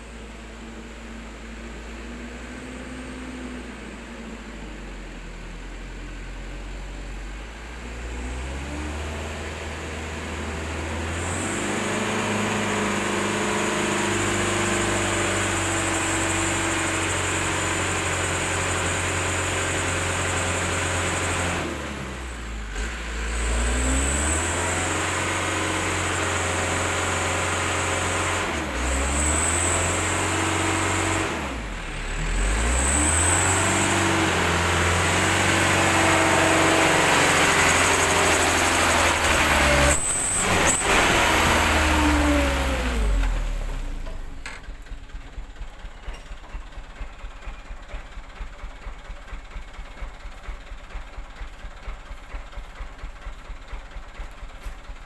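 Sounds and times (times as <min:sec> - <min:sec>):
diesel truck engine under load: 0:00.0 - 0:55.0.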